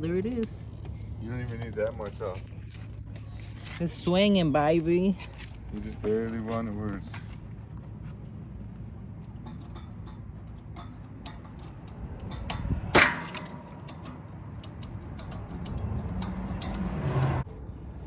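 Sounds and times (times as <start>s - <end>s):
metal tool clicks and taps: 9.4s - 17.4s
loud metallic clang: 9.5s - 14.2s.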